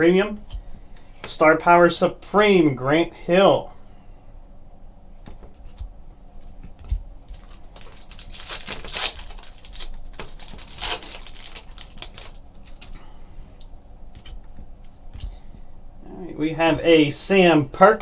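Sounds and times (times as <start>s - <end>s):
cards and wrappers rustling: 5.4s - 15.6s.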